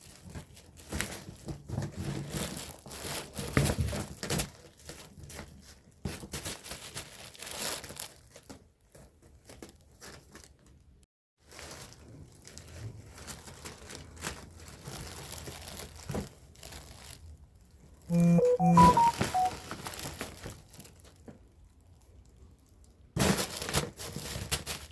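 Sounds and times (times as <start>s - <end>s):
crinkling and rustling: 0.0s - 10.6s.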